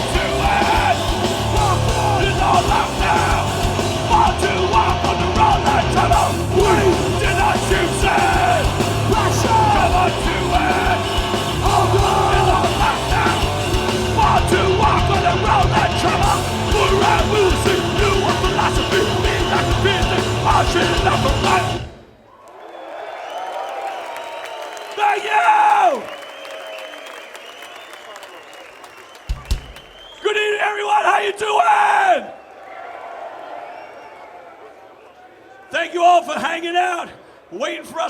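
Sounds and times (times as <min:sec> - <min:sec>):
punk band playing live: 0:00.0 - 0:22.0
shouted vocals: 0:00.0 - 0:22.0, 0:23.7 - 0:26.2, 0:30.2 - 0:38.0
distorted guitars: 0:00.0 - 0:22.1
heavy drums: 0:00.0 - 0:22.1, 0:29.3 - 0:29.9.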